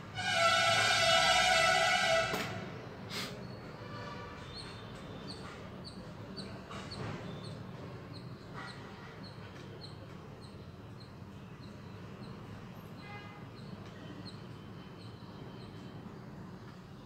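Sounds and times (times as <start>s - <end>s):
small bird chirping: 4.4s - 13.0s, 13.6s - 15.9s.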